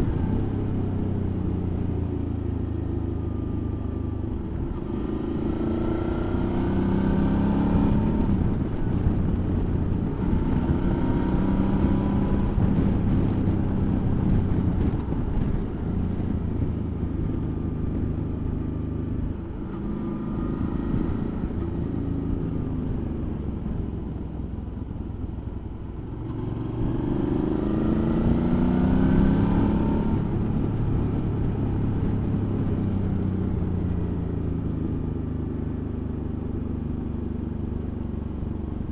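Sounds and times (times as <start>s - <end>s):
motorcycle engine accelerating: 0.0s - 24.4s, 25.8s - 38.9s
wind noise: 4.4s - 18.2s.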